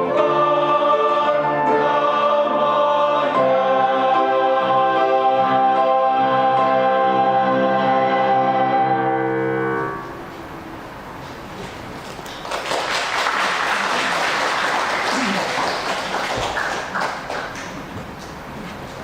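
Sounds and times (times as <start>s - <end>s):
choir singing held chord: 0.0s - 10.2s
audience applauding: 12.0s - 18.4s.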